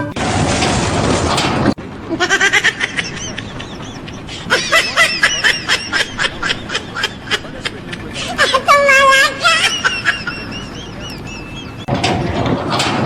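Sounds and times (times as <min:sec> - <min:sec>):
person laughing: 0:02.1 - 0:11.9.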